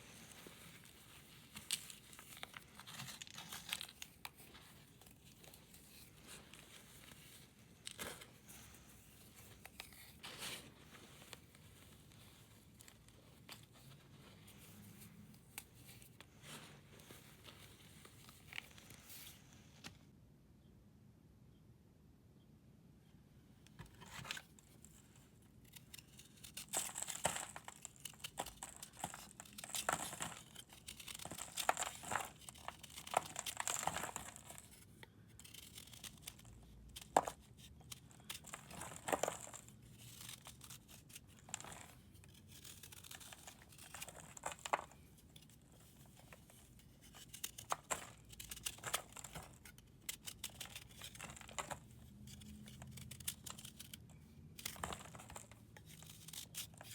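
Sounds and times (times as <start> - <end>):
powder crunching and scraping: 25.7 - 54.0.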